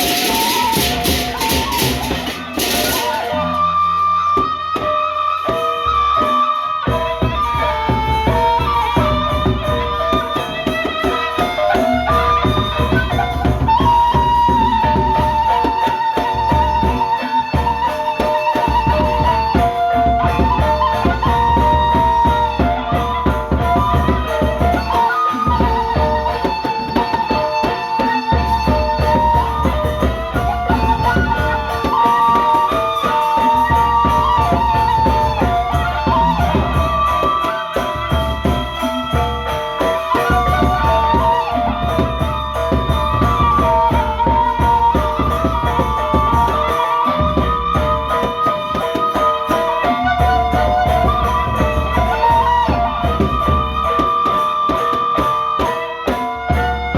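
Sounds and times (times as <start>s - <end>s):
large drums beating: 0.0s - 3.7s, 6.9s - 56.9s
gamelan melody: 0.0s - 56.9s.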